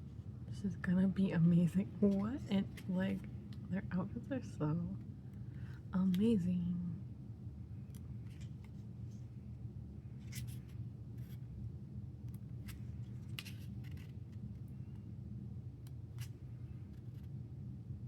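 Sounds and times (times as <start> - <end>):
low steady hum: 0.0 - 18.0
book pages turning: 1.7 - 3.7, 7.8 - 9.3, 10.1 - 11.6, 12.2 - 15.1, 15.9 - 17.3.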